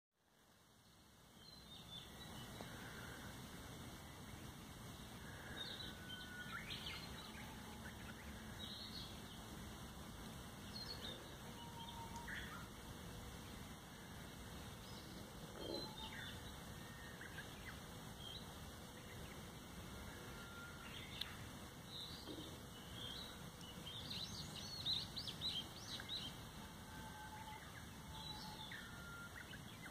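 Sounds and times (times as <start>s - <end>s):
birds chirping and whistling: 14.9s - 18.4s, 22.0s - 29.9s.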